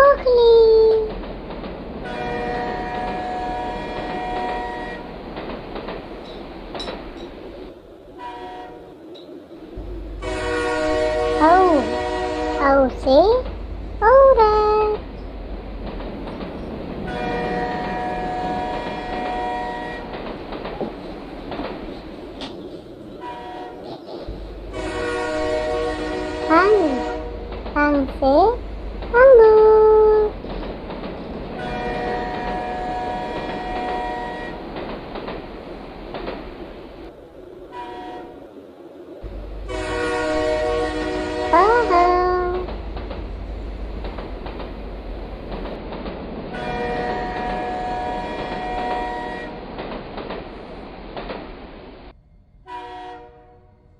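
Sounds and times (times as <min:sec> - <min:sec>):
train rumbling: 0:00.0 - 0:53.9
train horn chord: 0:02.0 - 0:05.2, 0:08.2 - 0:09.0, 0:09.8 - 0:15.3, 0:17.0 - 0:20.2, 0:23.2 - 0:30.5, 0:31.5 - 0:34.7, 0:39.2 - 0:45.0, 0:46.5 - 0:49.7, 0:52.6 - 0:53.9.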